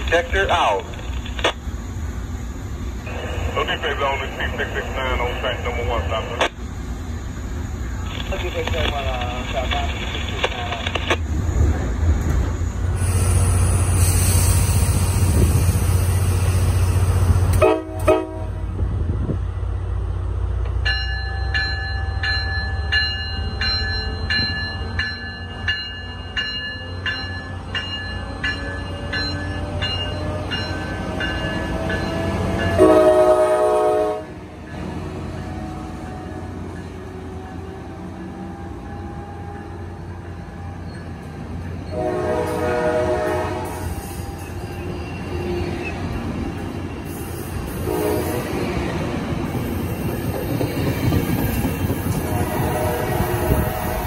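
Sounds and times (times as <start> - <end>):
low rumble aboard moving train: 0.0 - 54.0
train engine rising in pitch: 11.3 - 20.0
train bell ringing: 12.8 - 17.5, 20.8 - 33.1
locomotive horn blast: 17.6 - 18.7, 32.8 - 34.4, 41.9 - 43.9, 47.8 - 48.6, 52.1 - 54.0.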